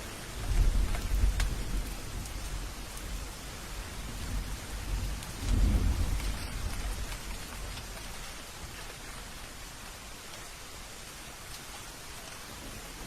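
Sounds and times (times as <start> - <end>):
steady rain: 0.0 - 13.0
thunder rolling: 4.0 - 7.7.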